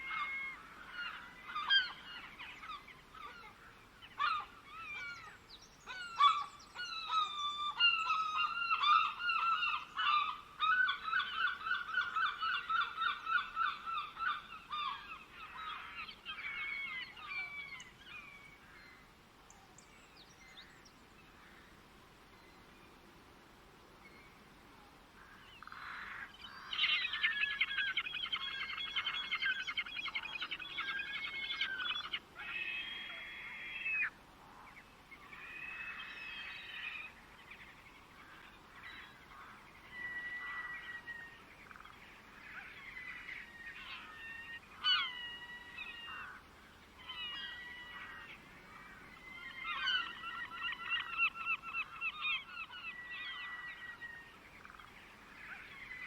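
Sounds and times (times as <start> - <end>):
songbirds chattering trills: 25.2 - 56.0.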